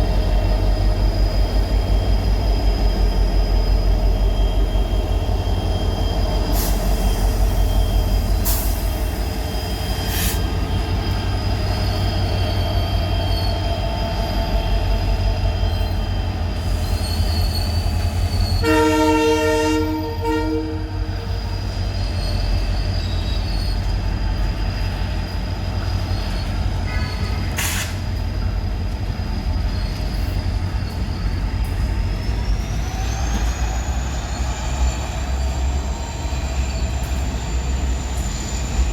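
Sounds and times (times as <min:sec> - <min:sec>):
diesel locomotives humming: 0:00.0 - 0:38.9
train horn blast: 0:18.6 - 0:21.1.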